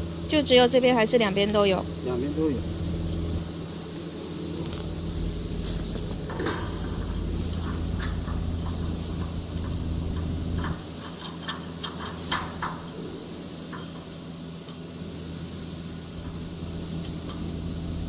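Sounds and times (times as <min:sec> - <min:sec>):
machine hum: 0:00.0 - 0:11.0
metal clinks and knocks: 0:04.6 - 0:15.0, 0:15.9 - 0:18.0.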